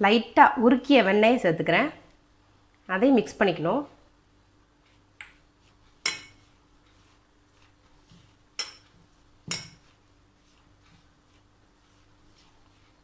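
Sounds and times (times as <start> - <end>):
spoon clinking against bowl: 6.0 - 6.5, 8.6 - 8.9, 9.5 - 9.9.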